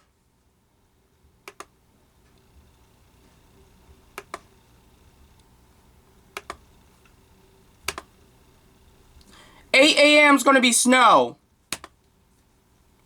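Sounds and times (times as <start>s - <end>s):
faint room hum: 0.0s - 13.0s
computer mouse double clicks: 6.4s - 6.6s, 7.9s - 8.1s, 11.7s - 12.0s.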